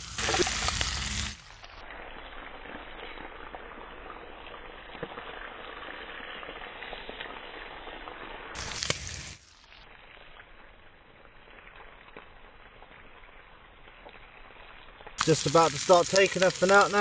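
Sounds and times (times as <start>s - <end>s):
fish sizzling in a frying pan: 0.0s - 17.0s.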